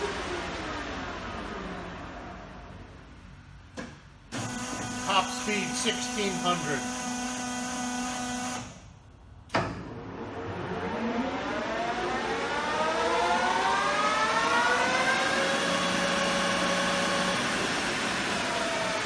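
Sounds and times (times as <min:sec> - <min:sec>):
spindle gearing whine: 0:00.0 - 0:09.0, 0:09.9 - 0:19.0
lathe running: 0:04.3 - 0:08.7, 0:13.6 - 0:19.0.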